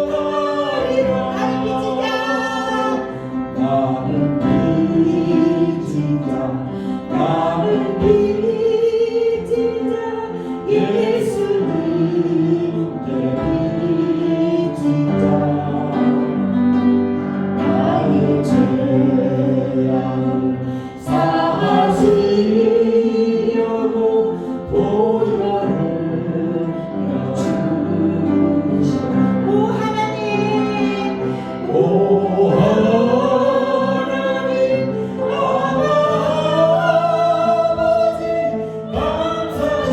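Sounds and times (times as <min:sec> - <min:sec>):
group singing a worship song: 0:00.0 - 0:39.9
instrumental accompaniment: 0:00.0 - 0:39.9.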